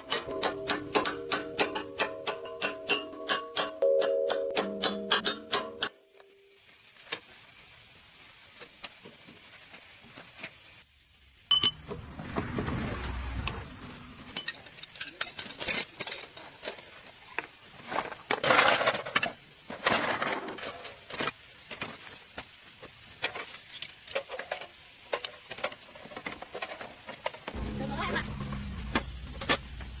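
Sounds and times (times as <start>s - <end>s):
light clinks and knocks: 14.4s - 17.1s.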